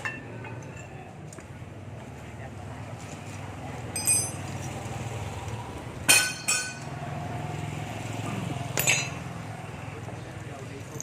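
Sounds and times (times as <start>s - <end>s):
metal tools clinking: 3.9s - 4.8s, 6.1s - 6.9s, 8.7s - 9.3s.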